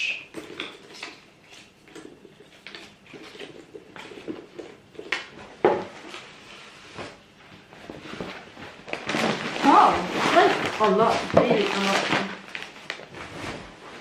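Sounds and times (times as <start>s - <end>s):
pouch rustling: 7.9s - 14.0s.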